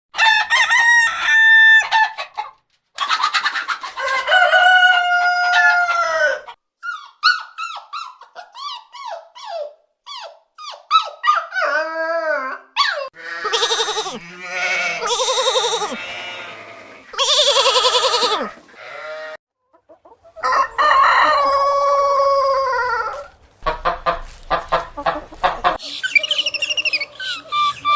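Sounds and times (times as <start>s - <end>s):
roosters crowing: 0.2s - 2.3s, 3.9s - 6.6s, 13.2s - 19.4s, 20.4s - 25.8s
chickens clucking: 1.8s - 6.4s, 19.6s - 27.9s.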